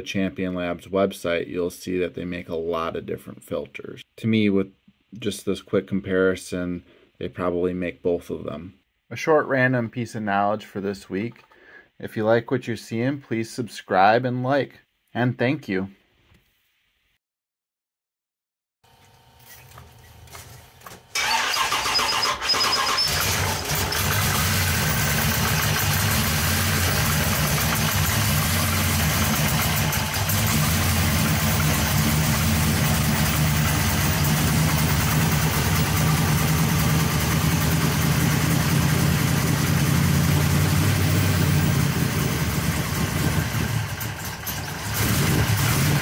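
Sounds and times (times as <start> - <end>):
engine starting and idling: 21.1 - 46.0.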